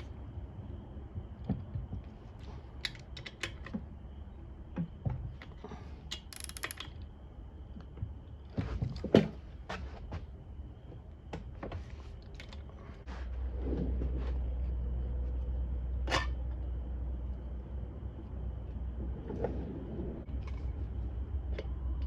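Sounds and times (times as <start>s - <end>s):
steady low hum: 0.0s - 22.0s
metal tools clicking and clunking: 6.1s - 7.0s.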